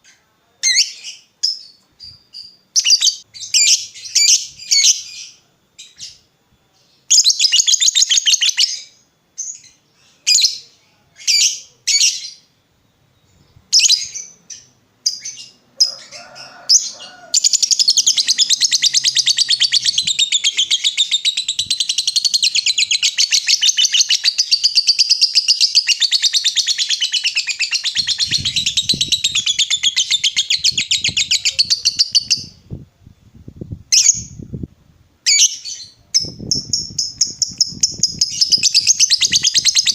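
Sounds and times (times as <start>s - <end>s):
lovebird chattering: 16.7s - 32.6s, 35.3s - 39.9s.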